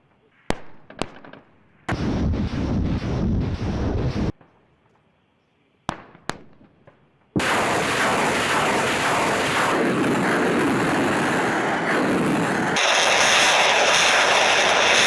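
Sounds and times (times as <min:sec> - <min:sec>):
sharp rocket launch reports: 0:01.9 - 0:04.3, 0:07.4 - 0:15.0.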